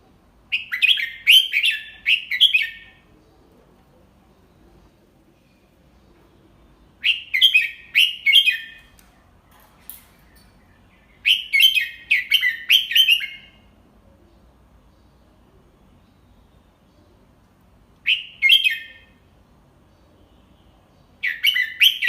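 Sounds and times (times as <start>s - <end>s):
bird singing whistled notes: 0.5s - 3.0s, 6.9s - 9.0s, 10.2s - 13.7s, 18.0s - 19.2s, 20.3s - 22.0s.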